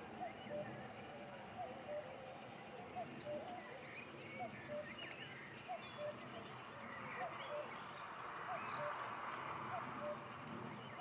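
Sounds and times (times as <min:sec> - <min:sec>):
birds calling: 0:00.0 - 0:11.0
birds twittering chirps: 0:00.0 - 0:11.0
outdoor background hiss: 0:00.0 - 0:11.0.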